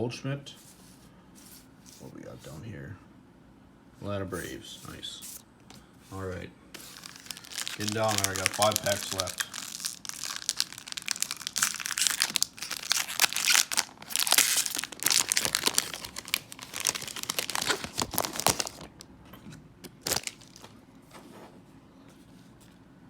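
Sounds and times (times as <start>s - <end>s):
foil wrapper tearing and crinkling: 6.8s - 19.0s, 20.0s - 20.8s.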